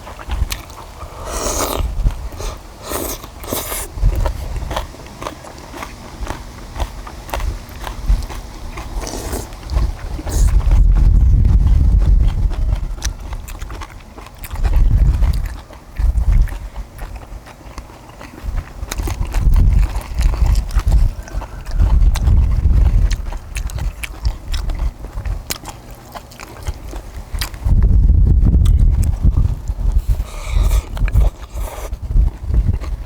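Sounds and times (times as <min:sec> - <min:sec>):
wind on microphone: 0:00.0 - 0:04.9, 0:09.0 - 0:17.2, 0:18.4 - 0:25.5, 0:27.0 - 0:33.0
people chewing: 0:00.0 - 0:33.0.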